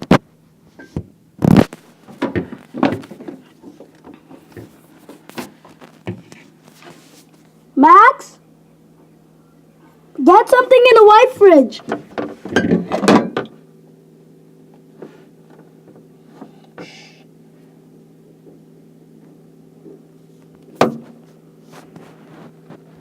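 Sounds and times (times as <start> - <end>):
low electrical hum: 0.0 - 23.0
loud rustling and knocking: 1.5 - 7.4.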